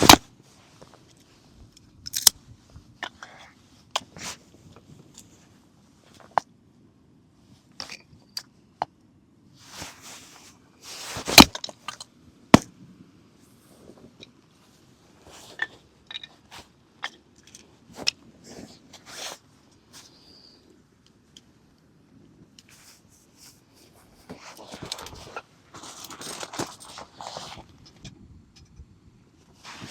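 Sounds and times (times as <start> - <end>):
objects being handled: 0.0 - 1.3, 9.7 - 12.7, 22.6 - 28.7.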